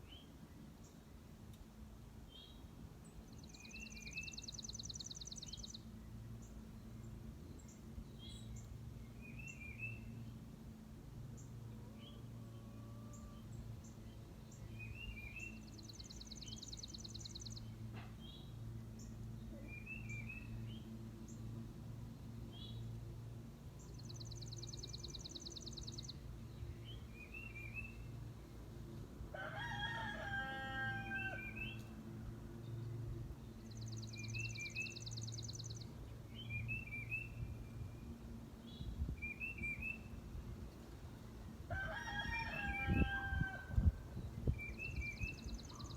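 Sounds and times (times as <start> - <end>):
rooster crowing: 29.3 - 31.6, 41.7 - 43.8.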